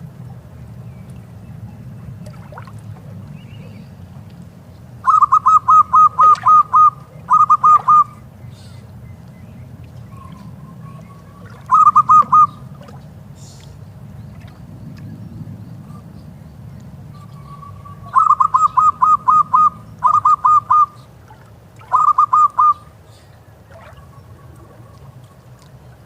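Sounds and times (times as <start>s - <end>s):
dove cooing: 5.0s - 8.8s, 10.1s - 12.9s, 17.4s - 21.1s, 21.9s - 22.9s.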